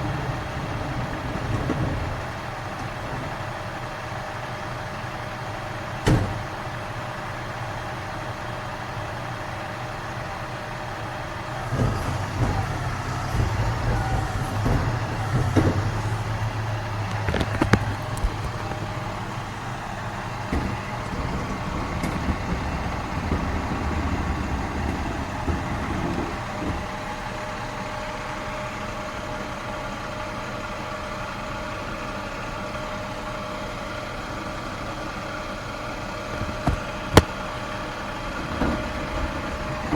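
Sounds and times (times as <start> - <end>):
garbage truck engine rumbling: 0.0 - 39.9
sharp knocks and clanks: 6.0 - 6.8, 11.4 - 27.2, 36.3 - 37.5, 38.4 - 39.9.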